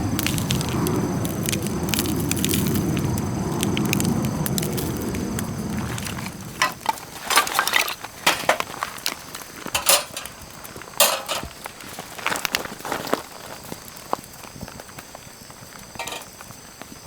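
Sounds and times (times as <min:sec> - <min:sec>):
cookware and utensils clinking: 0:09.7 - 0:10.4, 0:11.0 - 0:11.6, 0:16.0 - 0:16.3.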